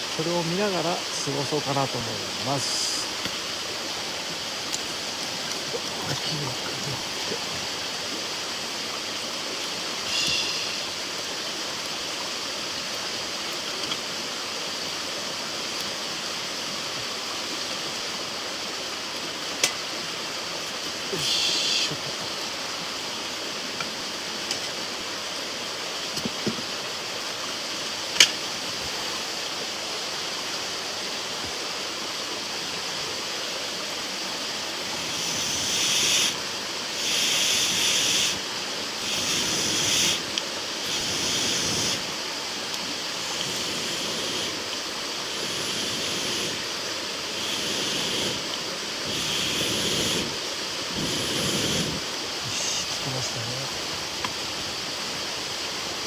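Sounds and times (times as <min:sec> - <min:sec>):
campfire hissing and crackling: 0:00.0 - 0:56.0
bursts of air blowing on fire: 0:39.0 - 0:42.1, 0:43.2 - 0:44.6, 0:45.3 - 0:46.6, 0:47.3 - 0:52.1.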